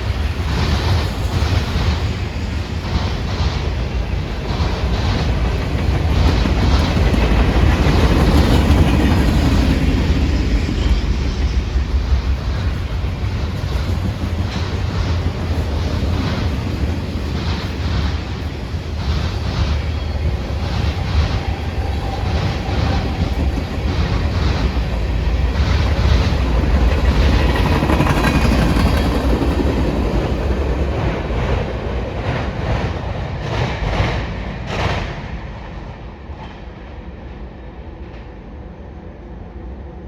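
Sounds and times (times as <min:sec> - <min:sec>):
steel wheels clicking over rail joints: 0:00.0 - 0:31.6
freight train cars rolling past: 0:00.0 - 0:39.6.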